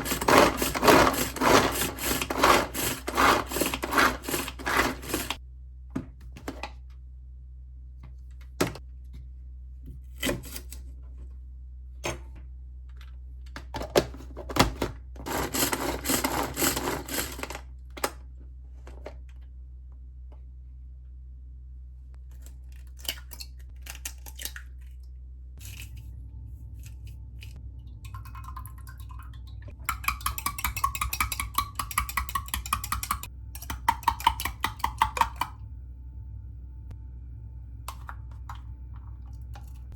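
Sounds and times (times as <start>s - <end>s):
kitchen clattering: 0.0s - 5.4s
scraping: 0.0s - 5.4s
steady low hum: 23.6s - 39.9s
utensils knocking and clicking: 29.8s - 35.6s.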